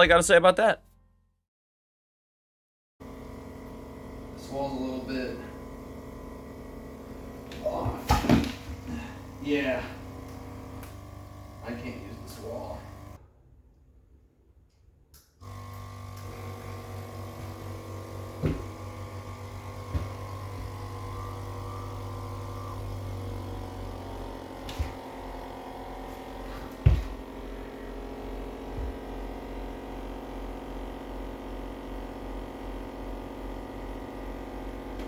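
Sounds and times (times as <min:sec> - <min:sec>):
steady electric hum: 0:03.0 - 0:13.2, 0:15.4 - 0:35.0.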